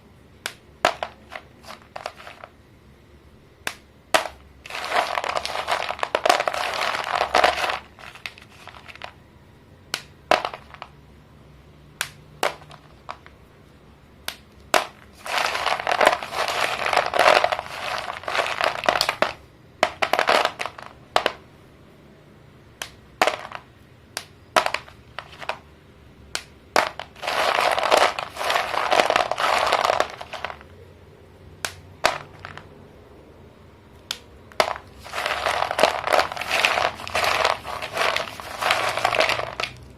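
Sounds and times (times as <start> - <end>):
chalk sticks snapping: 0.4 - 2.5, 3.6 - 9.1, 9.9 - 10.8, 14.2 - 21.3, 22.8 - 25.6, 26.3 - 30.6, 31.6 - 32.6, 34.0 - 39.9
chalk crunching and crumbling: 0.9 - 2.5, 4.2 - 9.2, 14.7 - 21.3, 26.8 - 30.6, 34.6 - 39.8.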